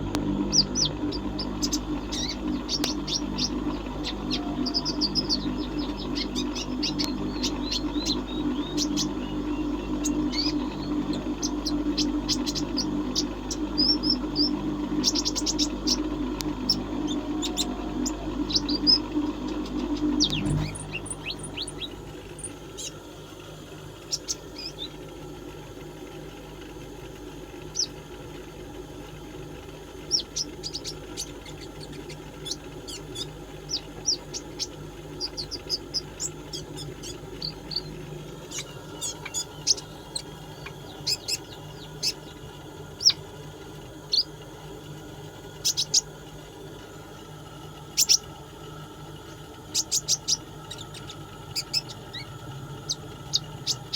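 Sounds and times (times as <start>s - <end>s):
steady low hum: 0.0s - 53.9s
bird chirping and trilling: 0.4s - 23.0s, 24.0s - 25.0s, 27.7s - 28.0s, 30.0s - 43.4s, 44.0s - 44.4s, 45.6s - 46.2s, 47.9s - 48.3s, 49.2s - 53.9s.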